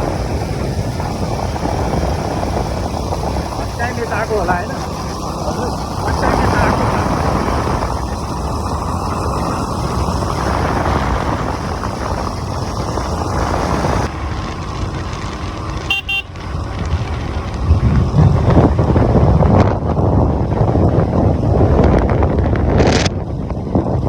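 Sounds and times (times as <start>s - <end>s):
motorcycle road and wind noise: 0.0s - 24.0s
vehicle horn beeping: 15.8s - 16.4s.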